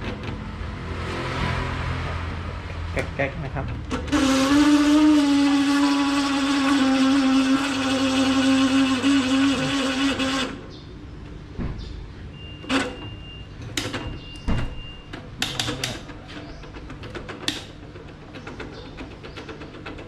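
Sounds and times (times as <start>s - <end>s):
electric fan motor humming: 3.1s - 11.4s
sharp clicks and knocks: 13.6s - 20.0s.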